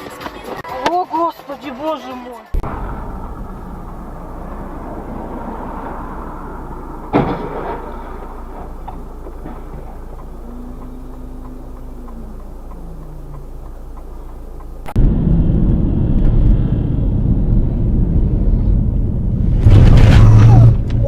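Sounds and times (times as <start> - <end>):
loud bang: 2.6 - 10.2, 15.0 - 21.0
car driving noise: 2.6 - 21.0.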